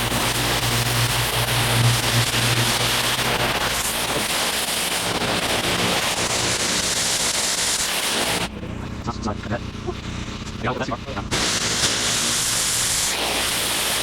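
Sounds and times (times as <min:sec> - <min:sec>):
pressure washer water jet hiss: 0:00.0 - 0:08.5, 0:11.3 - 0:14.0
engine hum: 0:00.0 - 0:14.0.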